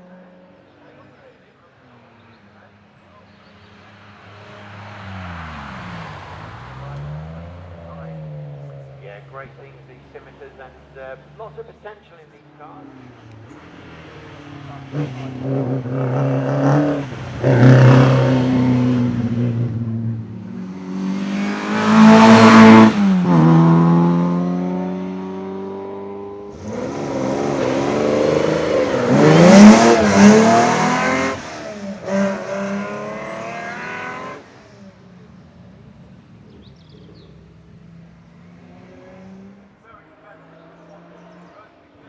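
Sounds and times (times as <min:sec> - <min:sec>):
race car engine revving hard: 0:13.6 - 0:34.9.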